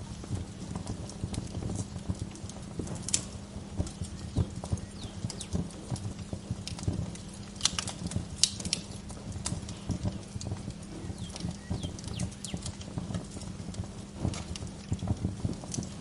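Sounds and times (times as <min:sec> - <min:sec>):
wood fire crackling: 0:00.0 - 0:16.0
faint bird chirps: 0:04.0 - 0:05.6, 0:11.0 - 0:12.7.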